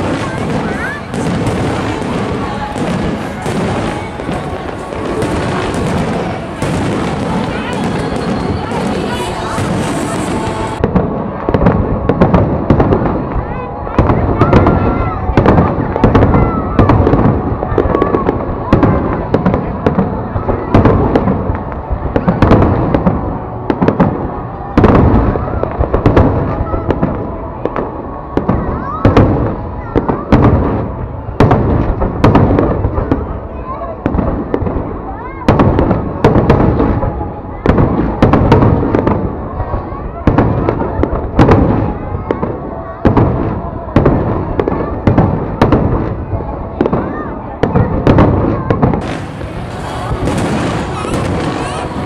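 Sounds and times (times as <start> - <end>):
fireworks cracks and bangs: 0.0 - 52.0
fireworks shells bursting: 49.0 - 52.0.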